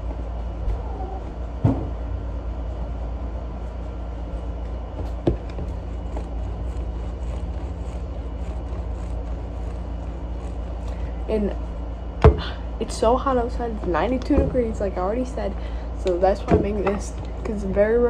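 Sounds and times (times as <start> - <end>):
steady low hum: 0.0 - 18.0
sharp knocks: 12.2 - 12.6, 13.8 - 15.0.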